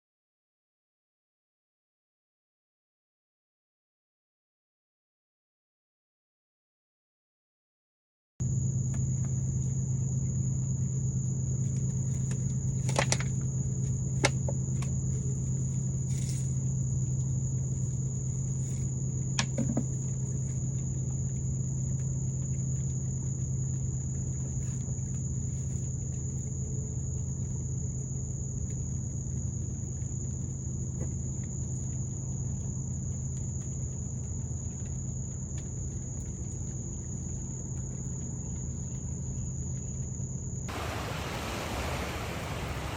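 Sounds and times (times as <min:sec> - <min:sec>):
low steady hum: 0:08.4 - 0:42.9.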